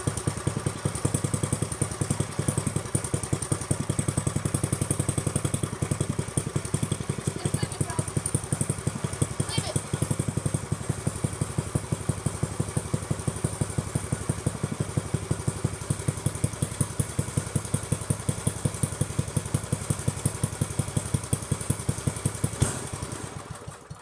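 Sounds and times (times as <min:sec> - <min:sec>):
small engine idling: 0:00.0 - 0:24.0
engine sharp pop: 0:22.4 - 0:23.4.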